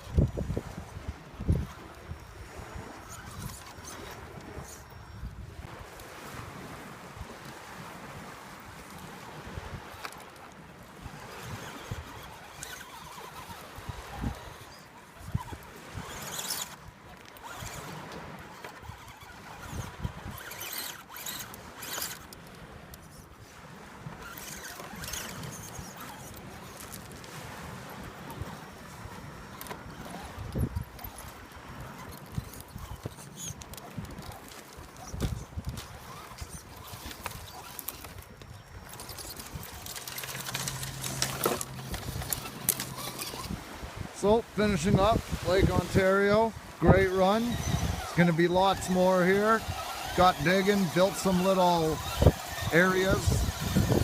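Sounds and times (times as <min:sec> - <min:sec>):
tires scrabbling over rocks: 0:00.0 - 0:05.3, 0:09.8 - 0:23.2, 0:24.2 - 0:54.0
small electric motor whining: 0:00.0 - 0:05.6, 0:08.8 - 0:43.8, 0:44.8 - 0:54.0
electric motor hum: 0:31.8 - 0:43.6, 0:44.9 - 0:54.0.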